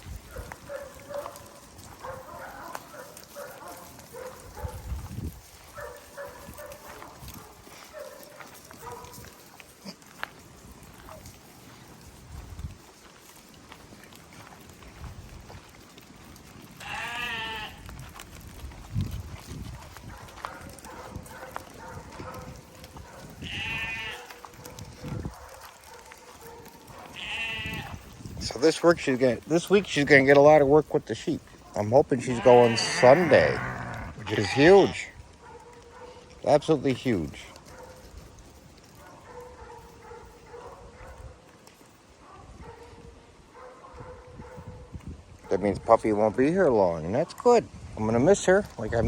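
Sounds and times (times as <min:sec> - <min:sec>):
rustling: 0:00.0 - 0:42.9
sheep bleating: 0:16.8 - 0:17.8, 0:23.4 - 0:24.5, 0:27.0 - 0:28.1, 0:32.2 - 0:35.1.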